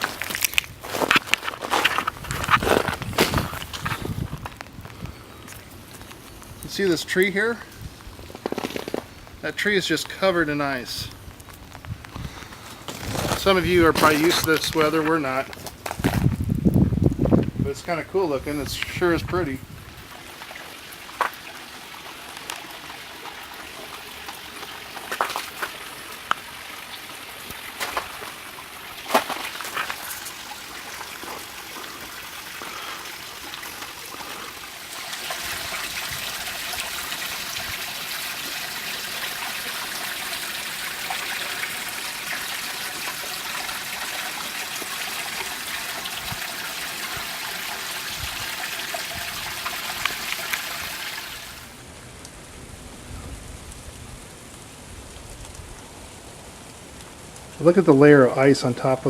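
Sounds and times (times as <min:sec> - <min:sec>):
freezing rain pattering: 0:00.0 - 0:59.0
water trickling and dripping: 0:16.3 - 0:52.4.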